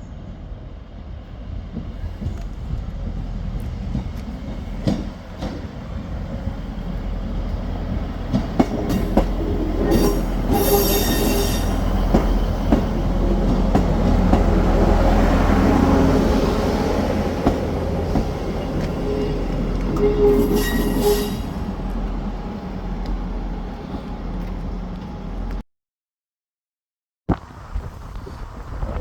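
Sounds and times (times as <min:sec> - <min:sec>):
diesel train engine rumble: 0:00.0 - 0:25.6
high-pitched wheel squeal: 0:09.9 - 0:11.8, 0:19.0 - 0:21.6.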